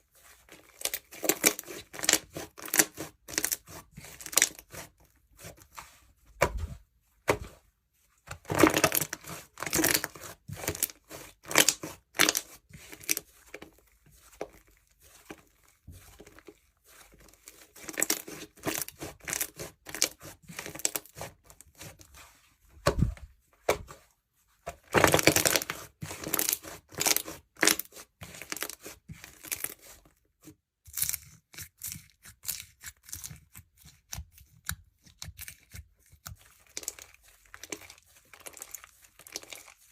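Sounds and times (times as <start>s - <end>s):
slime with beads being pressed: 0.7s - 4.8s, 8.4s - 13.2s, 24.9s - 29.8s.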